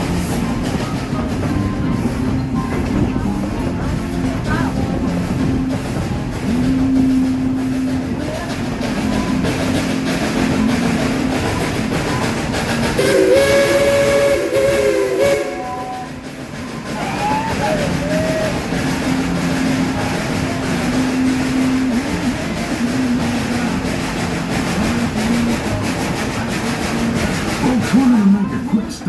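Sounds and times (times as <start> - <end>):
train running noise: 0.0 - 29.0
steam locomotive whistle: 5.6 - 28.7.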